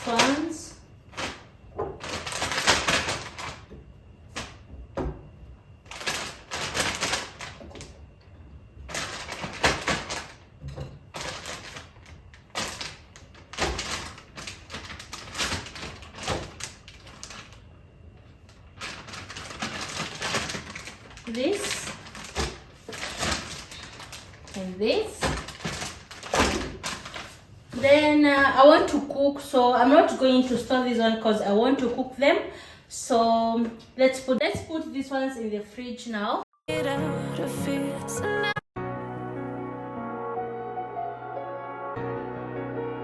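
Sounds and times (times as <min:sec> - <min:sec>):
plastic wrapping crinkling: 0:01.1 - 0:04.6, 0:05.8 - 0:08.0, 0:08.8 - 0:17.8, 0:18.4 - 0:28.0.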